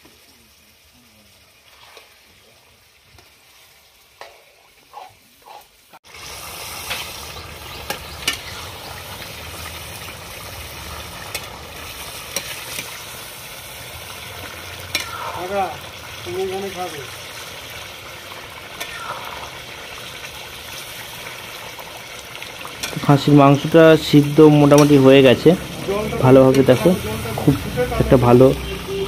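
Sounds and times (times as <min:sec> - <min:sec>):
meat sizzling in a pan: 0:00.0 - 0:29.0
spatulas scraping a pan: 0:04.2 - 0:05.9, 0:11.3 - 0:13.0, 0:14.8 - 0:15.4.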